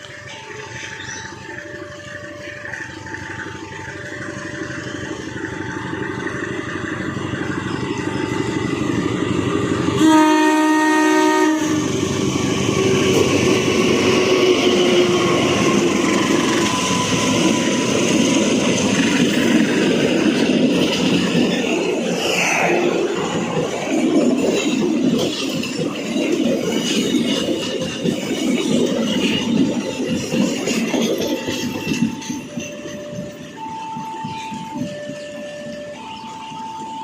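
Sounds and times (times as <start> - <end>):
train wheels rumbling on rail: 0.0 - 37.0
train horn blast: 9.9 - 12.2.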